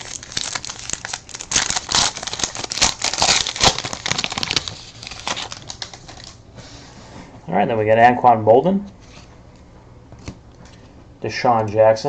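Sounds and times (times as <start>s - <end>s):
plastic wrapper crinkling and tearing: 0.0s - 6.4s.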